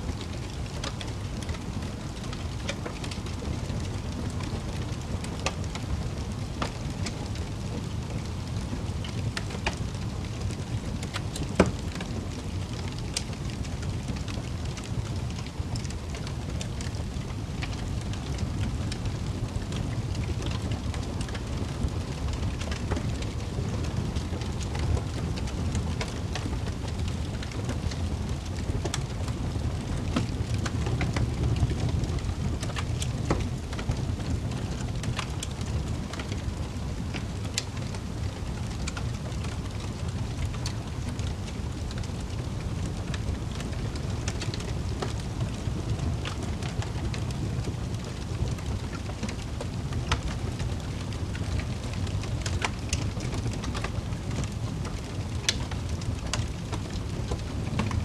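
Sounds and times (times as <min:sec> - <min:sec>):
wood fire crackling: 0:00.0 - 0:58.0
fire pops: 0:32.5 - 0:58.0.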